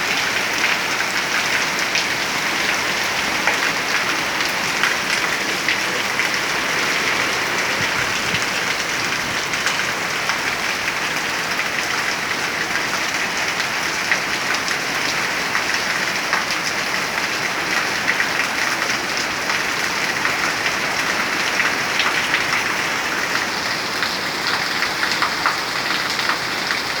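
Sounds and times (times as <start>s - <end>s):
heavy rain hissing: 0.0s - 27.0s
raindrops ticking close by: 0.0s - 27.0s.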